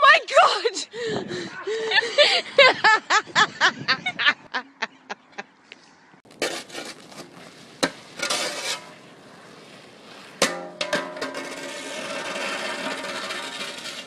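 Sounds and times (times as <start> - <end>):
people laughing: 1.6 - 5.5.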